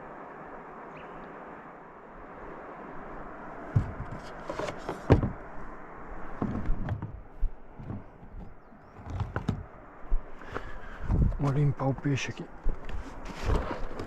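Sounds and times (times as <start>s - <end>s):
river water rushing: 0.0s - 8.2s
close knocks and thuds: 3.7s - 4.2s, 4.9s - 5.4s, 6.4s - 7.2s, 7.8s - 9.7s.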